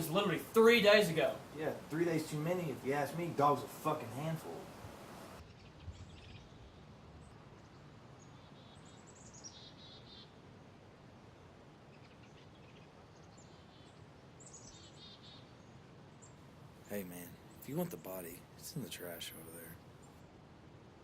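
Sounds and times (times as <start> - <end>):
small birds chirping: 0.0 - 10.4, 11.9 - 20.2.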